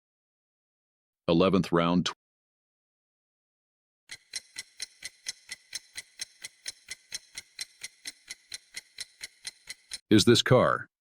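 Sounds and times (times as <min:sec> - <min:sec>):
clock ticking: 0:04.1 - 0:10.1.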